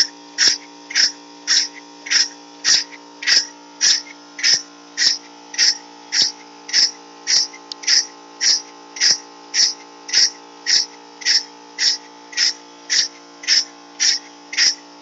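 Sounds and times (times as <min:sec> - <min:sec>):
steam engine exhaust chuffing: 0:00.0 - 0:14.8
steady hum: 0:00.0 - 0:15.0.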